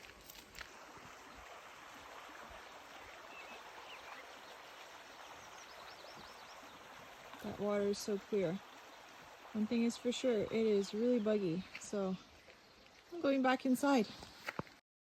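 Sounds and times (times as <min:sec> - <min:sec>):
creek running over stones: 0:00.0 - 0:14.8.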